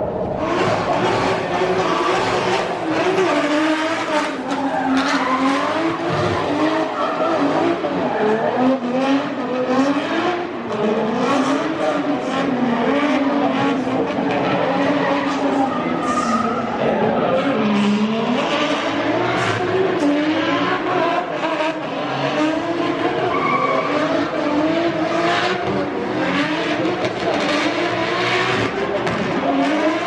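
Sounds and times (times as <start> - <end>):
car engines revving: 0.0 - 30.0
tyres screeching: 1.8 - 8.4.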